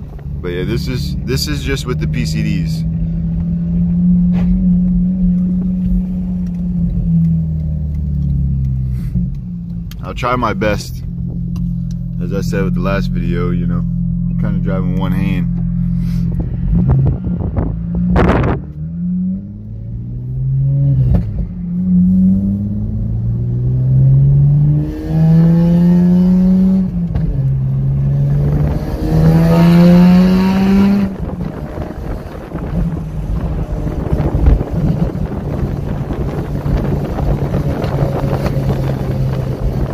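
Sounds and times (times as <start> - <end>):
car engine accelerating through gears: 0.0 - 39.9.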